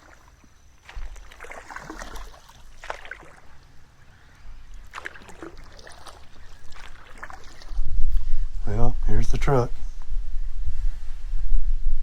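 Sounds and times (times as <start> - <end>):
paddle splashing in water: 0.0 - 8.3.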